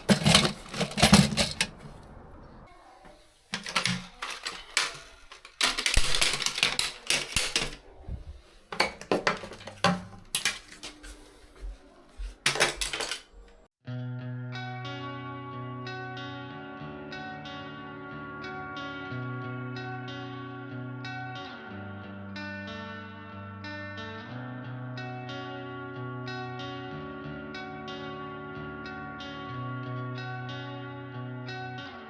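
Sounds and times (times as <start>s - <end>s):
plastic and metal parts clattering: 0.0s - 13.7s.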